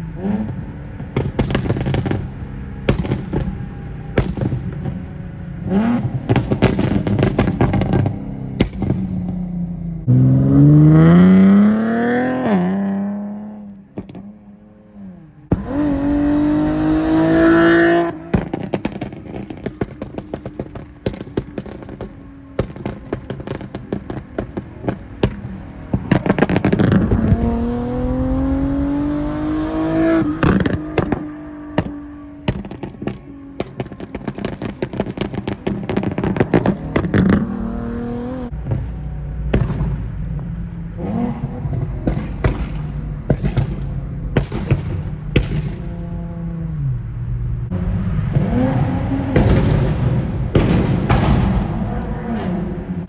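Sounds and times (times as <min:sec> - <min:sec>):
exhaust pops and crackles: 0:00.0 - 0:14.5, 0:15.5 - 0:53.0
car engine revving: 0:00.0 - 0:53.0.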